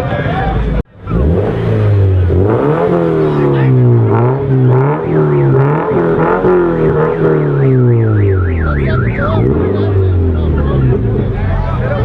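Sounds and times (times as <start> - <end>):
car engines revving: 0.0 - 12.0
high warbling siren tone: 4.1 - 11.0.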